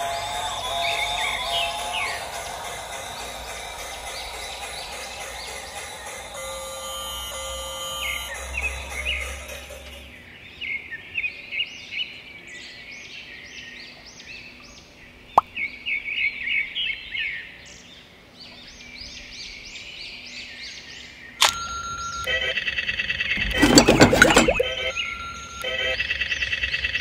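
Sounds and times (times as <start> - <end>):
sharp click: 21.4 - 21.6.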